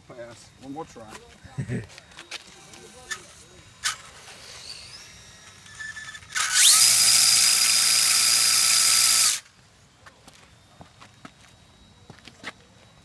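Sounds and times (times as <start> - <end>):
electric motor whine with hiss: 2.1 - 9.6.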